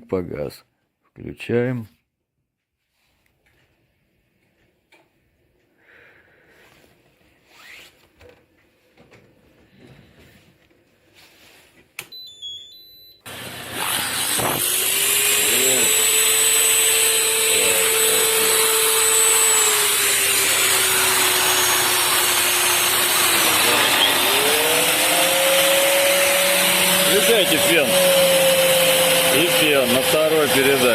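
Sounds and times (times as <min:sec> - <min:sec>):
vacuum cleaner motor whine: 0:13.3 - 0:30.9.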